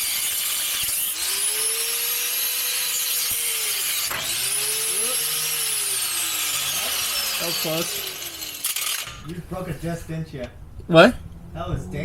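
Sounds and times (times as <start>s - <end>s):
angle grinder cutting steel pipe: 0.0s - 9.4s.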